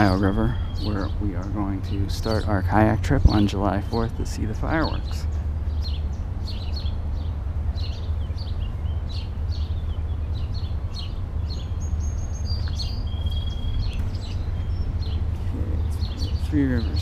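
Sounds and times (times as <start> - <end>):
whistled bird notes: 0.0 - 1.6, 5.8 - 17.0
songbirds chirping: 0.0 - 17.0
steady low rumble: 0.0 - 17.0.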